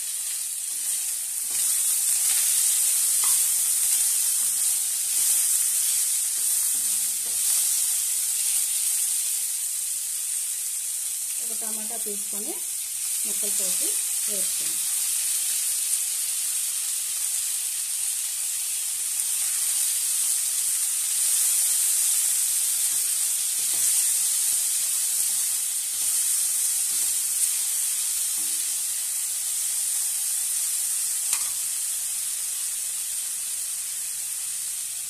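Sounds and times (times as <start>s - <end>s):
oil sizzling in a pan: 0.0s - 35.0s
spatula scraping a pan: 0.7s - 8.0s.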